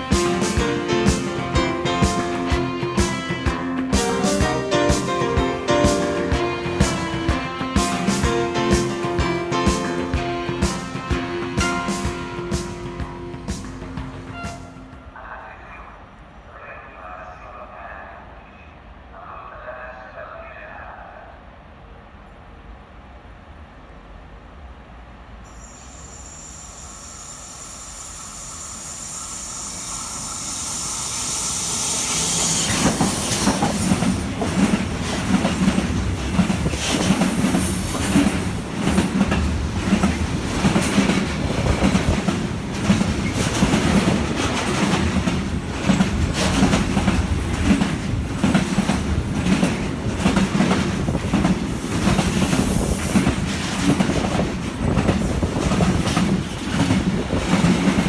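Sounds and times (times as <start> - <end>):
train hiss and whine: 0.0 - 58.0
wheels clattering over rail joints: 32.7 - 58.0.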